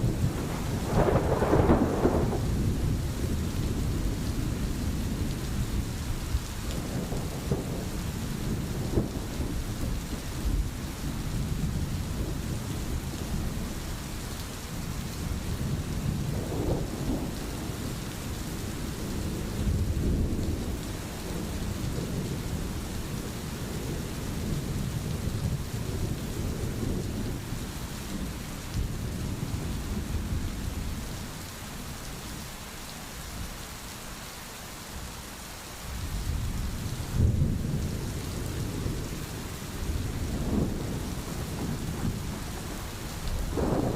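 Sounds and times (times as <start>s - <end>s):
rolling thunder: 0.0s - 13.8s, 15.1s - 31.2s, 36.0s - 43.9s
steady rain: 0.0s - 43.9s.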